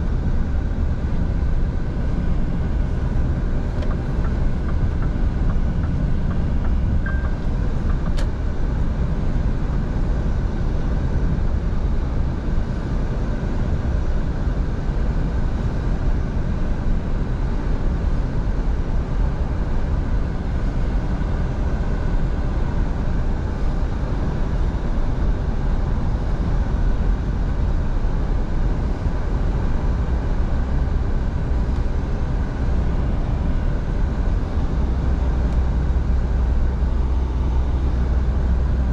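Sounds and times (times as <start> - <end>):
truck engine and road noise: 0.0 - 38.9.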